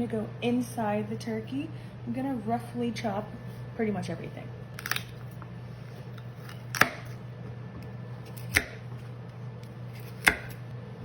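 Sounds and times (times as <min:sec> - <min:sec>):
knife chopping on cutting board: 0:06.3 - 0:07.2, 0:08.2 - 0:09.1, 0:09.9 - 0:10.6.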